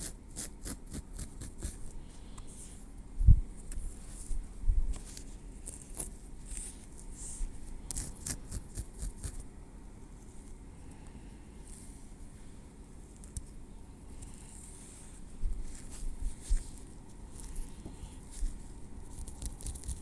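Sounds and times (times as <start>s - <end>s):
tweezers clicking and scraping: 7.9s - 9.4s, 19.2s - 20.0s.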